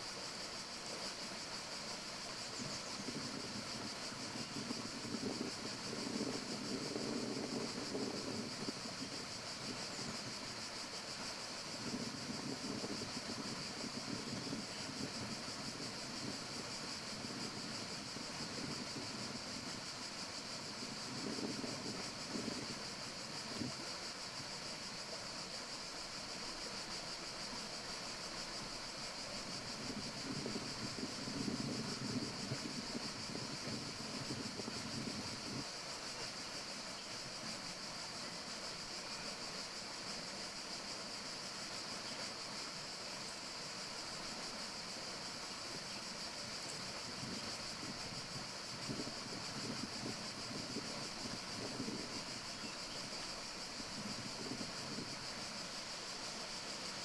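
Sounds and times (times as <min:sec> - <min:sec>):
steady high-pitched hiss: 0:00.0 - 0:57.0
wind gusts in leaves: 0:00.0 - 0:57.0.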